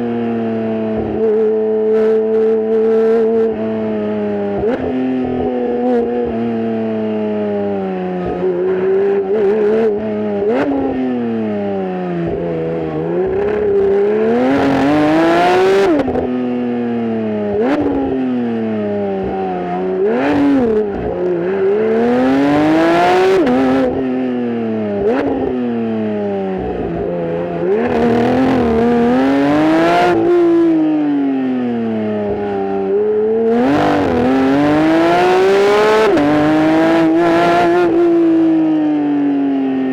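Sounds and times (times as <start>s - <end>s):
car engine accelerating through gears: 0.0s - 16.6s, 17.5s - 31.0s, 31.8s - 38.7s
engine rev spikes: 27.7s - 30.6s.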